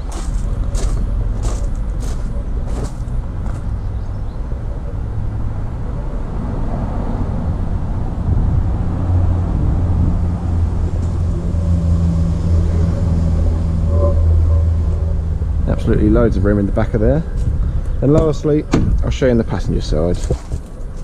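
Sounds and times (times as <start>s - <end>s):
motor vehicle engine running: 0.0s - 4.2s.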